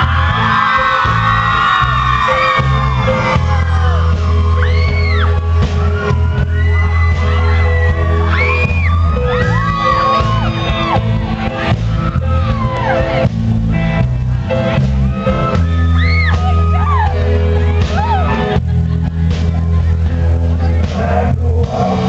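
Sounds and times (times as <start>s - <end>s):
shouted whoops: 0.0s - 13.2s, 15.2s - 18.4s
rock band music: 0.0s - 22.0s.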